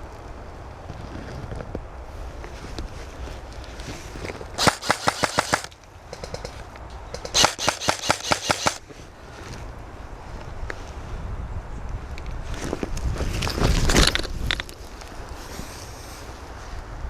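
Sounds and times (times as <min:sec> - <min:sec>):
airsoft rifle bursts: 0:04.6 - 0:08.8.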